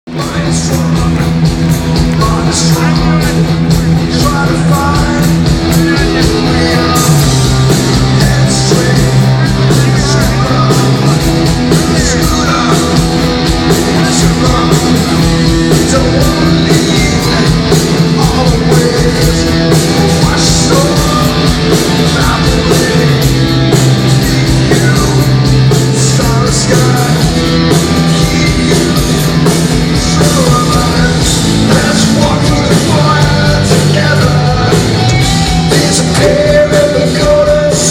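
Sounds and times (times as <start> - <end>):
live rock band: 0.0 - 37.9
person singing: 0.0 - 37.9.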